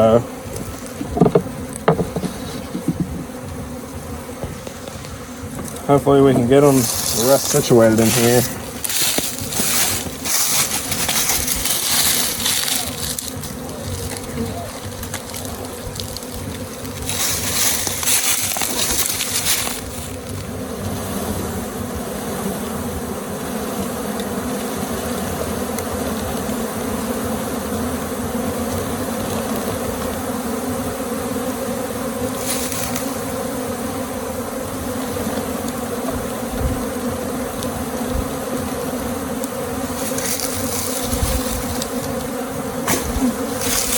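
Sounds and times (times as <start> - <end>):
bee swarm buzzing: 0.0 - 43.9
high hiss: 4.6 - 20.5, 32.3 - 33.4, 39.8 - 43.9.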